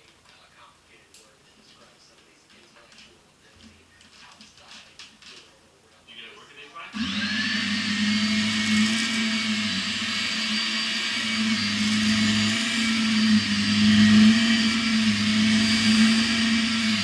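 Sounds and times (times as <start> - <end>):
vacuum cleaner running: 6.8 - 17.0.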